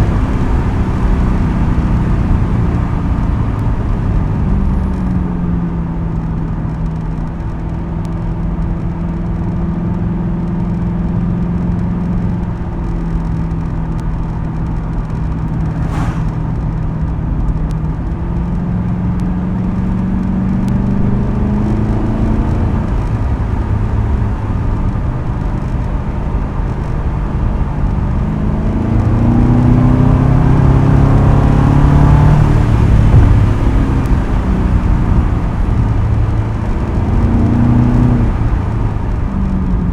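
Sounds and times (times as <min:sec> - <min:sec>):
car engine accelerating: 0:14.4 - 0:39.9.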